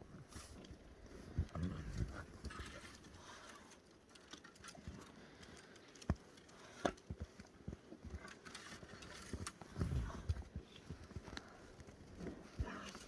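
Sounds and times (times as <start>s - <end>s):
tiger cubs chewing tree: 0.6s - 13.0s.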